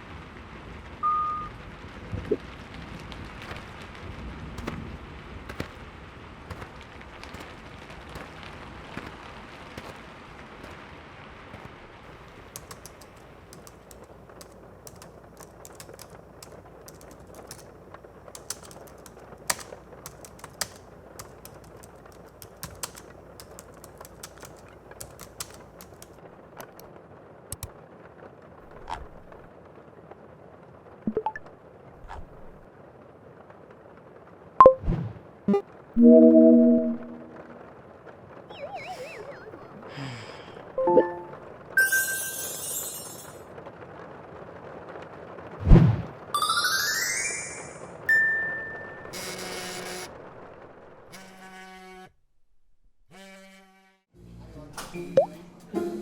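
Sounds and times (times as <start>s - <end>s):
rain hiss: 0.0s - 36.0s, 37.0s - 51.1s
sharp clicks and ticks: 12.3s - 26.9s, 27.5s - 27.7s.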